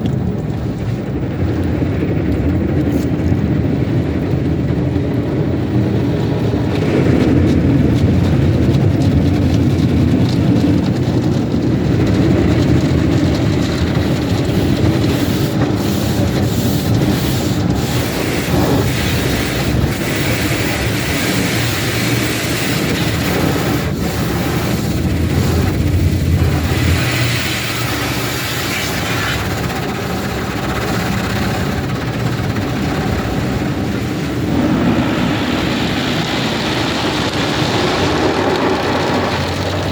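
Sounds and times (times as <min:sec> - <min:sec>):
car wash water and machinery rumble: 0:00.0 - 0:39.9
bright water hiss: 0:14.0 - 0:29.8.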